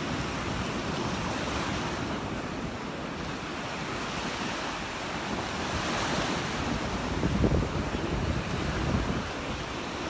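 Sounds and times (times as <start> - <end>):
surf breaking on beach: 0.0 - 10.0
wind buffeting microphone: 3.4 - 10.0.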